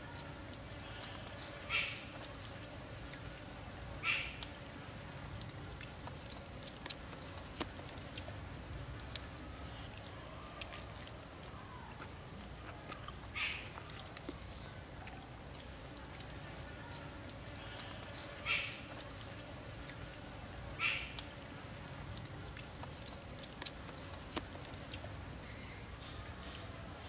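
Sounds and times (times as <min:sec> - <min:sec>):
person chewing raw meat: 0:00.0 - 0:27.0
wet mouth clicks: 0:05.3 - 0:16.4, 0:22.1 - 0:25.1.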